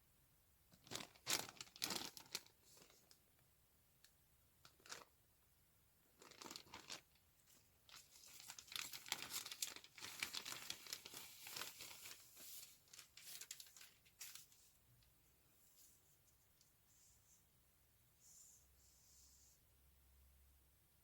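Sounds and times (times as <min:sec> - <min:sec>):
plastic bag crinkling: 0:00.8 - 0:03.2, 0:04.6 - 0:05.1, 0:06.2 - 0:14.6.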